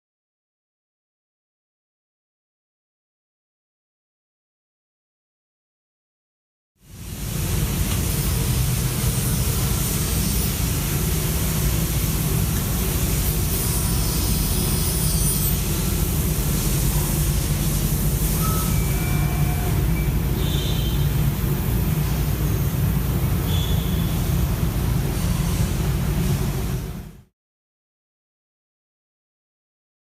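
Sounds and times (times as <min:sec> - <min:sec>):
machine running hum and hiss: 0:06.8 - 0:27.3.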